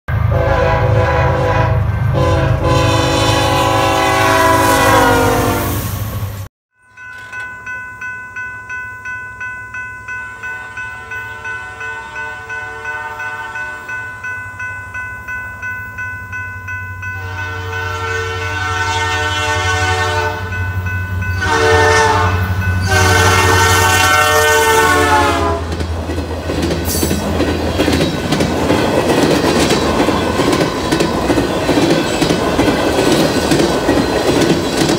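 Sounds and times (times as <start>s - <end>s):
locomotive horn blast: 0.1s - 6.0s, 11.0s - 13.9s, 17.2s - 20.6s, 21.4s - 25.8s
crossing bell dinging: 6.7s - 34.9s
train wheels rumbling and clattering: 24.7s - 34.9s.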